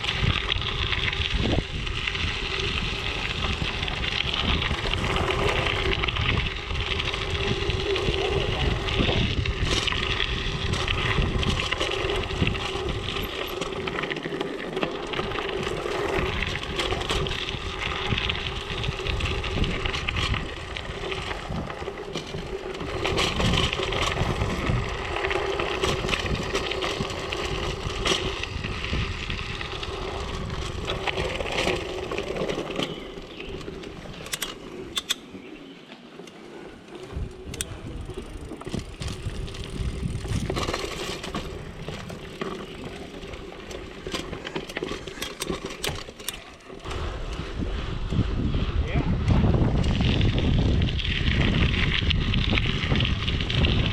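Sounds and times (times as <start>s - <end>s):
bike tyres crunching on gravel: 0.0s - 53.9s
clicks of loose stones: 40.3s - 46.9s.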